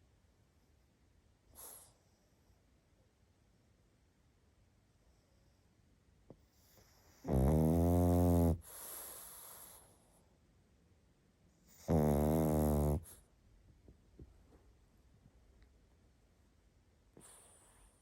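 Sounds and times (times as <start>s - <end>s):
dog snoring: 6.5s - 9.9s, 11.7s - 13.2s.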